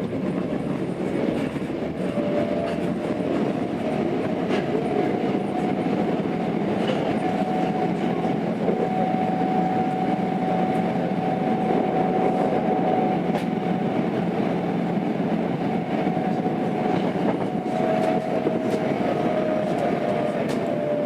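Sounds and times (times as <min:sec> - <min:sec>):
rail-joint clicks: 0:00.0 - 0:05.1, 0:06.7 - 0:11.0, 0:11.7 - 0:13.9, 0:15.9 - 0:20.9
wheels rumbling on rail: 0:00.0 - 0:21.0.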